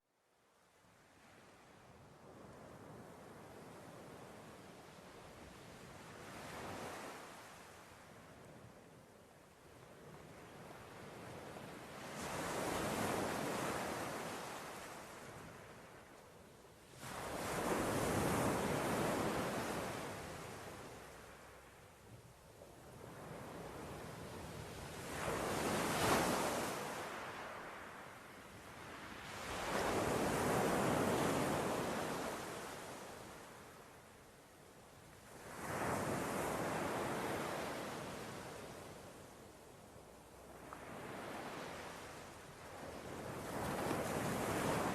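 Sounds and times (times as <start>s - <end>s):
sea waves breaking on shore: 22.9s - 28.1s, 40.5s - 44.9s.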